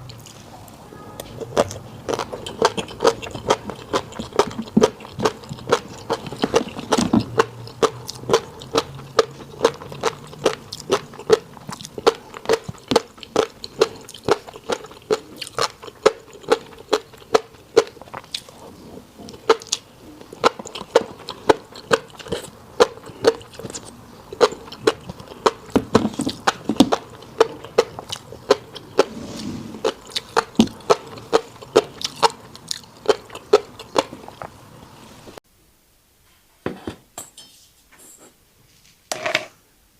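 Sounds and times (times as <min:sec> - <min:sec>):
chewing fish roe with pops: 0:01.2 - 0:18.6, 0:19.3 - 0:29.1, 0:29.8 - 0:34.6.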